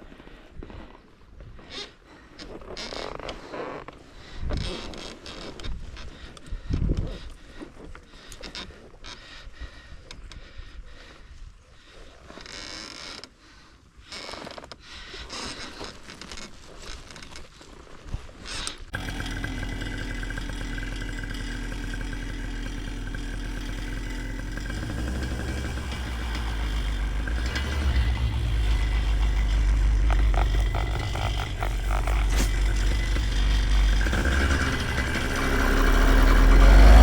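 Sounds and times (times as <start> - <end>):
paramotor engine running: 18.9 - 37.0.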